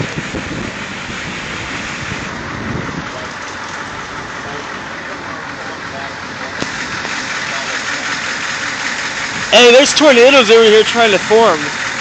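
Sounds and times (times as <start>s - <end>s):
storm wind rushing: 0.0s - 3.3s
wind gusts buffeting microphone: 0.0s - 4.8s, 9.0s - 9.8s.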